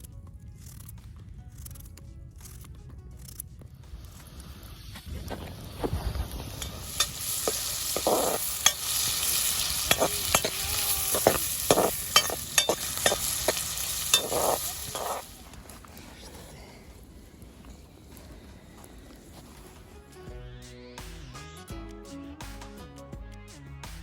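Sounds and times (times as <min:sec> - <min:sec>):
onion sizzling in fat: 0:03.9 - 0:16.5
spoon clicking and scraping pot: 0:06.6 - 0:15.3.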